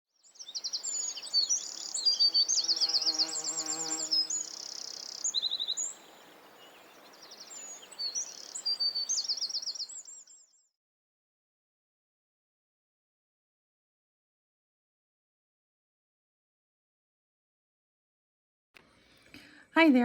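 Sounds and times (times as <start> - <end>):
small birds chirping: 0.2 - 10.6.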